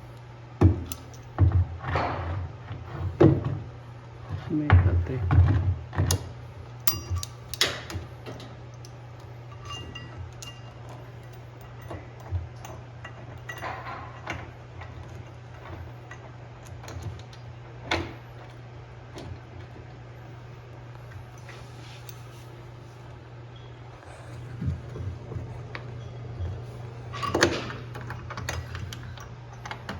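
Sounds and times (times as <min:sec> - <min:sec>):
steady low hum: 0:00.0 - 0:29.9
tools and parts clinking: 0:00.8 - 0:01.4, 0:06.1 - 0:18.1, 0:27.0 - 0:29.9.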